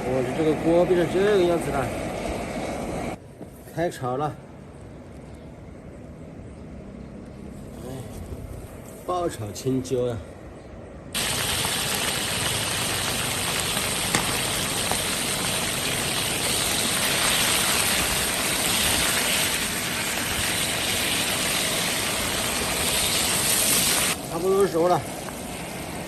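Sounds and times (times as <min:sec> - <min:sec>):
peppers sizzling in a wok: 0:11.2 - 0:26.0.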